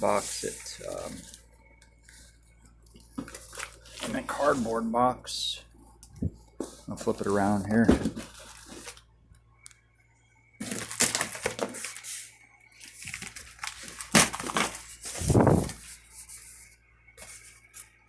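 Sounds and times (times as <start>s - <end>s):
cardboard scraping and rustling: 0.0s - 1.4s, 3.2s - 4.8s, 6.6s - 9.0s, 10.6s - 17.8s.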